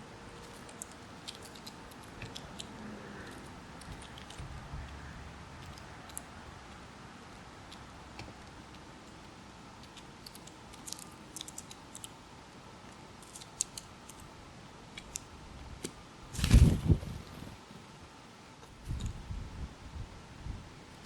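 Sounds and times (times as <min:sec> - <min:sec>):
rustling thump: 0:16.3 - 0:17.6.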